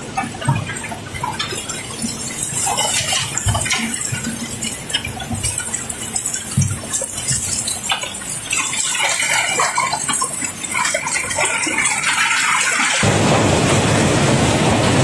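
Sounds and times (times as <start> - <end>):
steady rushing noise: 13.0 - 15.0.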